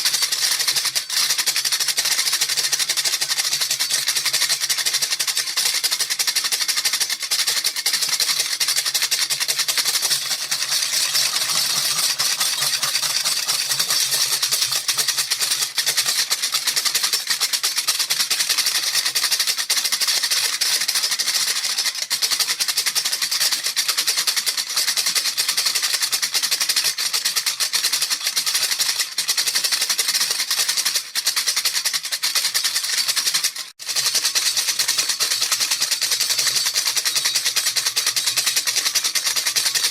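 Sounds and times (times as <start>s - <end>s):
baby rattle shaken: 0.0s - 39.9s.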